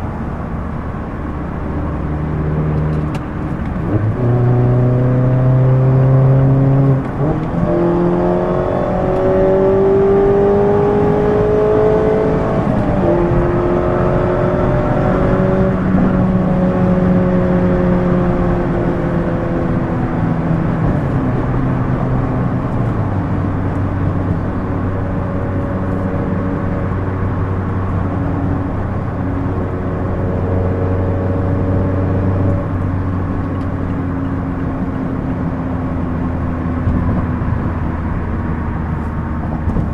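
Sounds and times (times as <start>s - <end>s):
car engine revving: 1.2s - 39.9s.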